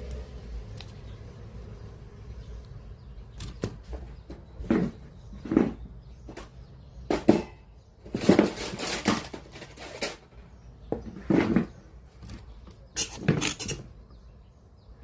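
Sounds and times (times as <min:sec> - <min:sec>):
small parts and tools rattling: 0:03.3 - 0:14.0.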